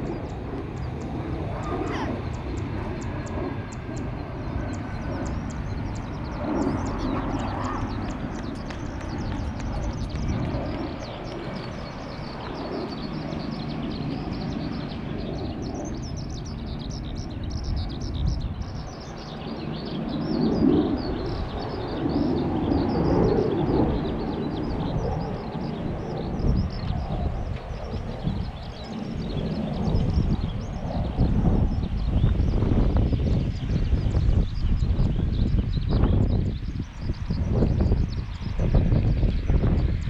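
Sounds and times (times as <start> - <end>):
small birds chirping: 0.0 - 40.0
faint voices: 1.4 - 2.5.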